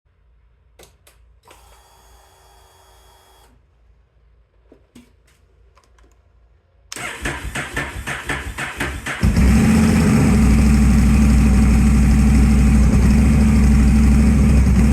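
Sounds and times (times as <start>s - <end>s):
electric starter cranking engine: 7.0s - 11.8s.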